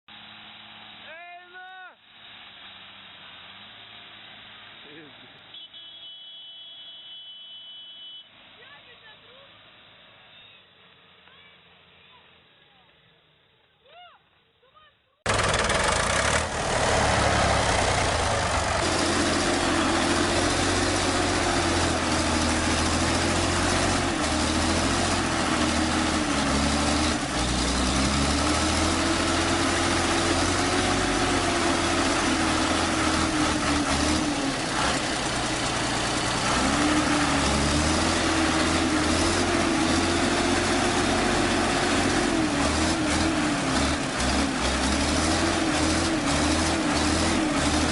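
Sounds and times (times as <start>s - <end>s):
tractor engine under load: 15.2s - 47.9s.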